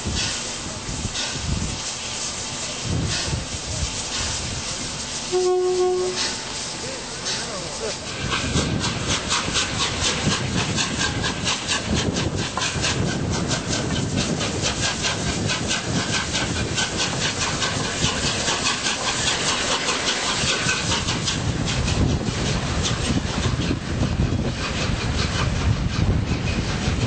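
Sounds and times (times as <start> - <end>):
steam locomotive hiss and beat: 0.0 - 27.0.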